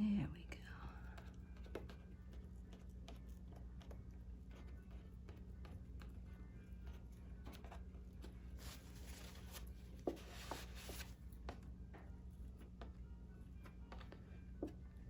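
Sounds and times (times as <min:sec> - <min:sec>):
rustling and scraping parchment: 0:07.5 - 0:11.2.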